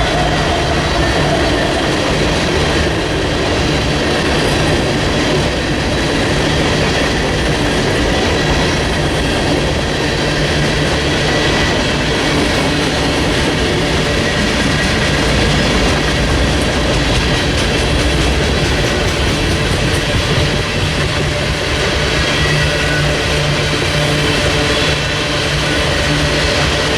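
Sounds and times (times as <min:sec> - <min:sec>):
train wheels rumbling and clattering: 0:00.0 - 0:26.9.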